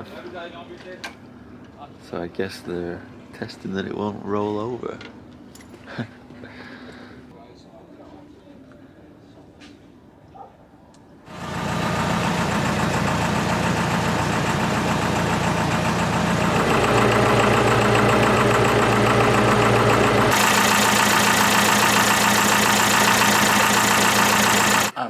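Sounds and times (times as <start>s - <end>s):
diesel boat engine running: 11.3s - 25.0s.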